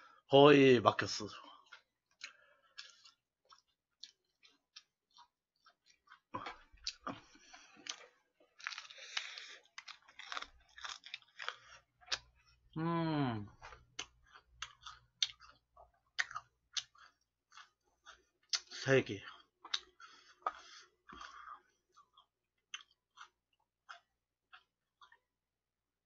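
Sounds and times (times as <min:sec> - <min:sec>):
chewing crunchy fried chicken: 0:01.4 - 0:12.7, 0:13.5 - 0:25.4.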